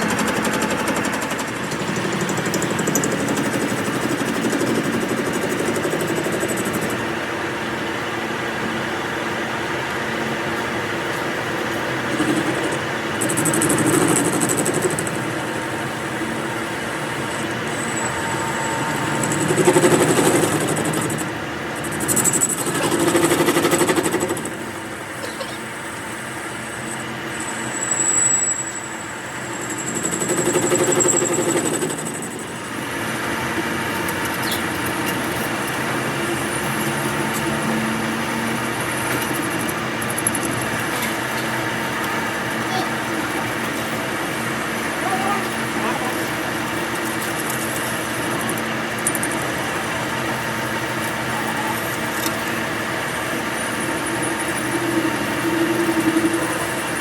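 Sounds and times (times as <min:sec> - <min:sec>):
workshop machinery running: 0:00.0 - 0:57.0
thin high whine: 0:15.2 - 0:19.7, 0:24.8 - 0:31.4.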